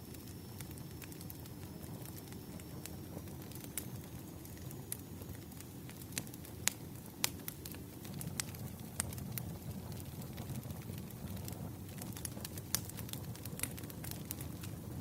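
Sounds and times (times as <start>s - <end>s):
bonfire crackling: 0.0s - 15.0s.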